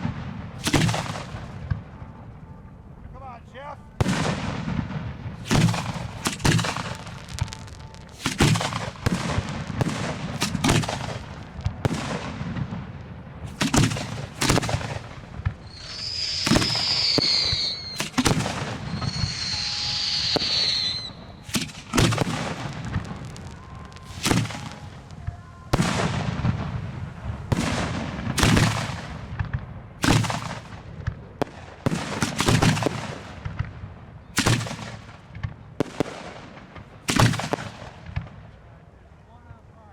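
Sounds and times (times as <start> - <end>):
fireworks bangs: 0.0 - 2.6, 3.8 - 38.5
high whistling firework: 0.0 - 2.6, 4.0 - 33.6, 34.2 - 36.4.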